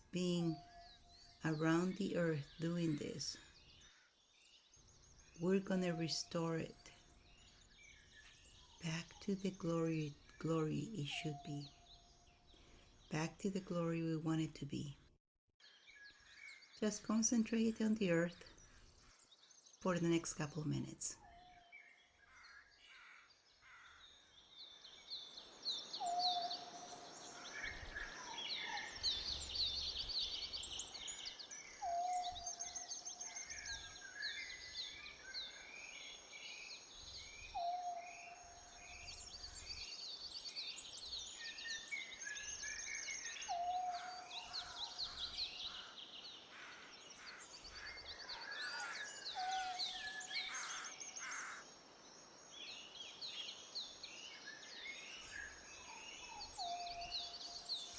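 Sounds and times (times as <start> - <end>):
small birds chirping: 0.0 - 15.0, 15.6 - 57.9.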